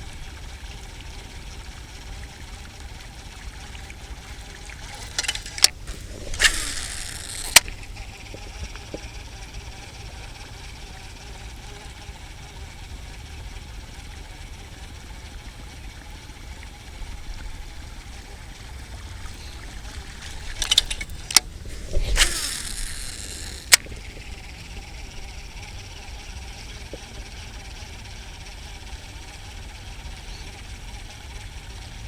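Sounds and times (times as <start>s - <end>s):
sharp clicks: 4.8s - 7.9s, 19.6s - 24.5s.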